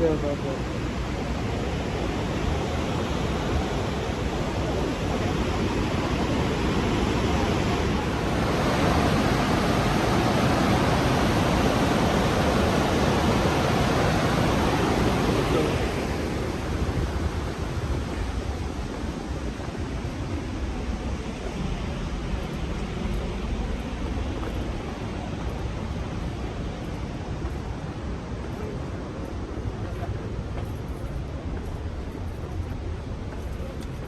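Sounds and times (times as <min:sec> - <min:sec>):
waterfall crashing: 0:00.0 - 0:18.2.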